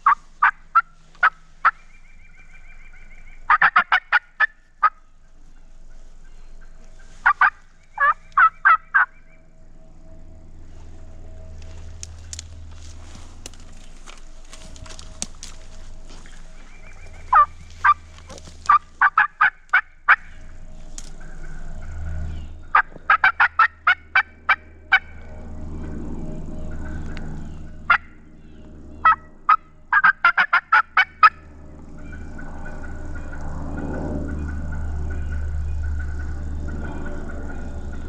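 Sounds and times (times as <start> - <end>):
turkey yelping: 0.0 - 9.3, 14.9 - 20.4, 22.6 - 25.2, 29.0 - 31.4
low steady rumble: 0.0 - 38.0.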